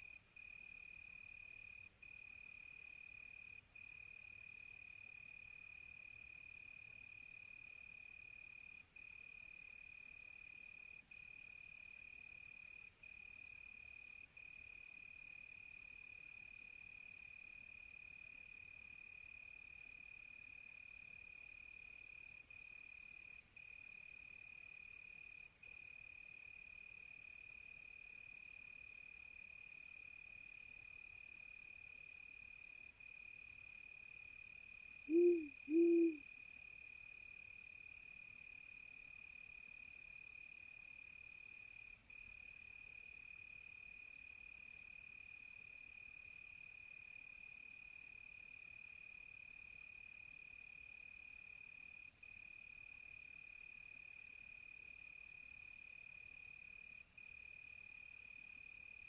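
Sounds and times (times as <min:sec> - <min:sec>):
crickets chirping: 0:35.1 - 0:36.2
owl hooting: 0:35.1 - 0:36.2.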